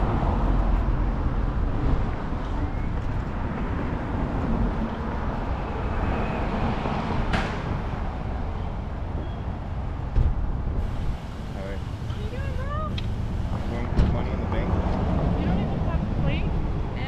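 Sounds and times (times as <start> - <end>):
road traffic rumble: 0.0 - 17.0
low thump: 10.1 - 10.5, 13.9 - 14.2.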